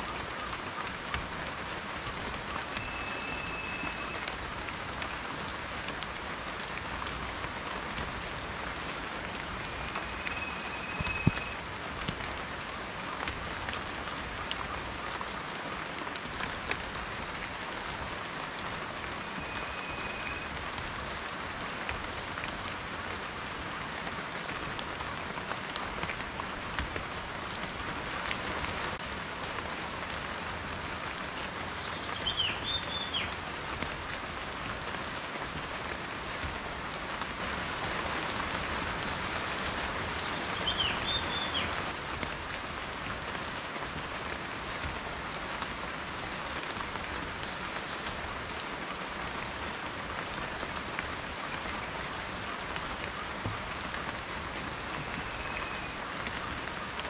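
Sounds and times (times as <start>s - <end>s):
rain pattering: 0.0s - 57.0s
faint whistled notes: 2.8s - 4.3s, 9.6s - 11.6s, 19.4s - 20.5s.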